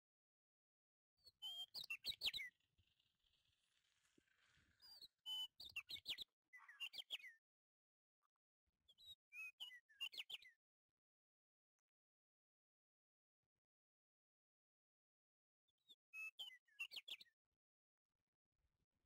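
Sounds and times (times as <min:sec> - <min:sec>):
small bird chirping: 0:01.2 - 0:07.4, 0:08.9 - 0:10.6.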